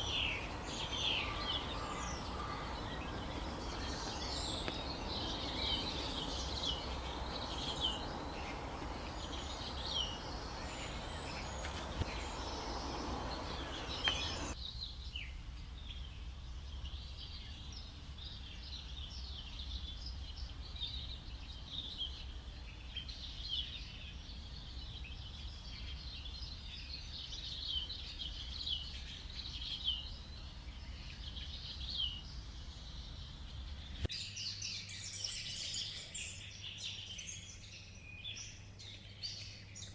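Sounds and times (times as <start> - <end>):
birds chirping: 0.0 - 14.6
nature ambience: 0.0 - 14.9, 15.8 - 39.9.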